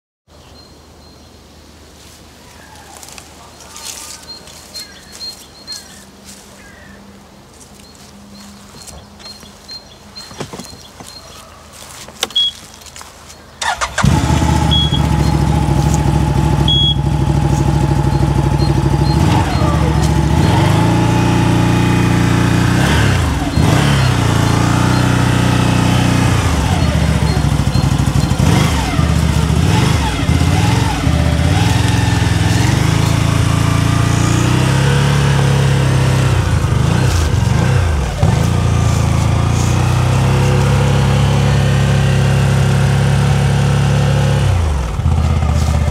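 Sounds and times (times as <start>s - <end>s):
engine starting and idling: 13.6s - 21.4s, 22.8s - 40.0s
engine revving: 13.6s - 45.9s.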